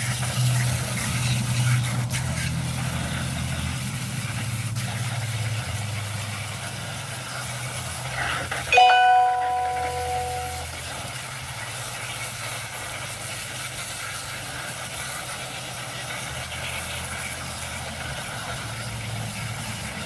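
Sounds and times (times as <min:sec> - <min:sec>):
water spraying from hose: 0:00.0 - 0:08.5, 0:11.4 - 0:20.0
ringing tone: 0:08.8 - 0:10.7.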